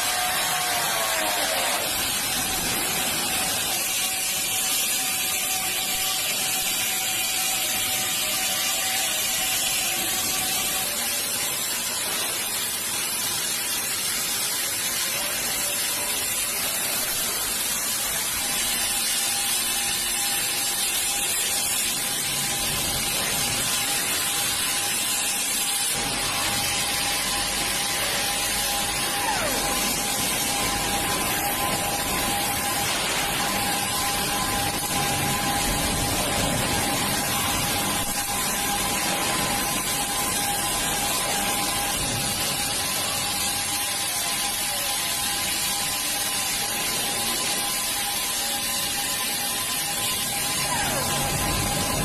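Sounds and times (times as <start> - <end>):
gliding whine: 15.9 - 52.0.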